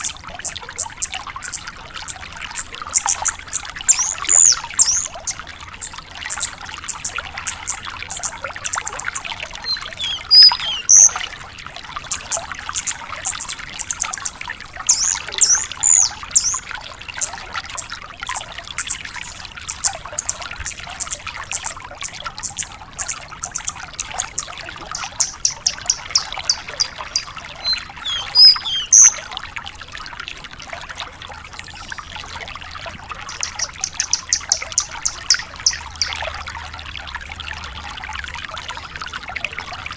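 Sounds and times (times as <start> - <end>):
running water trickling: 0.0 - 39.9
lark singing: 3.9 - 5.2, 9.0 - 11.2, 14.9 - 16.6, 22.5 - 29.2, 33.3 - 36.2.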